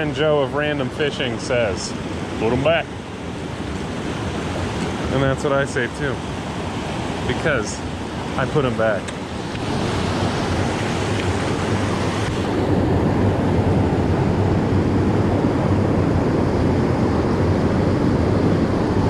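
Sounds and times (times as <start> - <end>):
creek water rushing over rocks: 1.2 - 12.6.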